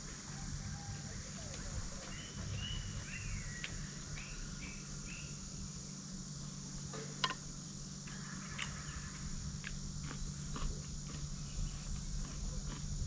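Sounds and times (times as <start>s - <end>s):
insects trilling: 0.0s - 13.0s
bird chirps: 2.0s - 5.4s.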